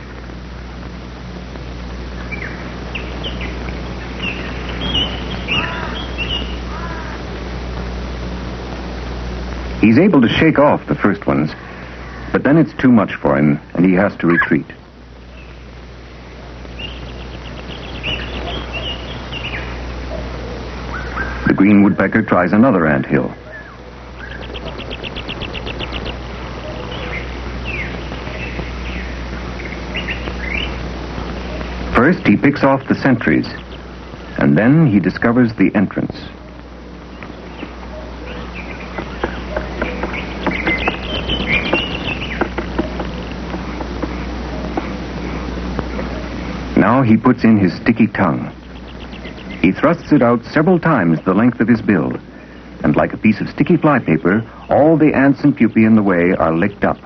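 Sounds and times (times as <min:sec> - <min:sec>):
steady hiss and hum: 0:00.0 - 0:57.0
bird chirps and calls: 0:02.2 - 0:07.2, 0:16.6 - 0:22.3, 0:23.3 - 0:30.8, 0:31.4 - 0:34.4, 0:36.4 - 0:44.7, 0:48.4 - 0:51.4.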